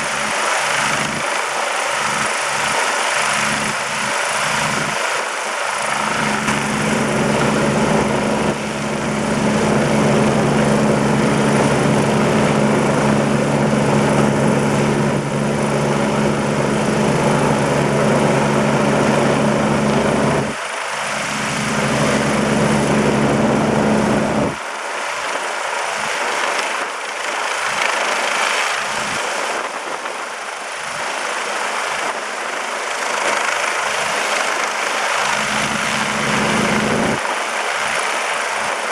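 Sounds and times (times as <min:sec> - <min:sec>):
rotor rushing noise: 0:00.0 - 0:24.7, 0:32.9 - 0:37.2
helicopter engine hum: 0:00.0 - 0:38.9.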